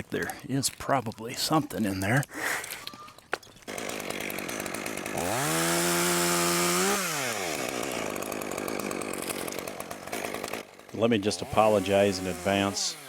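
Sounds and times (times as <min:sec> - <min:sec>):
chainsaw revving: 0:03.6 - 0:13.0.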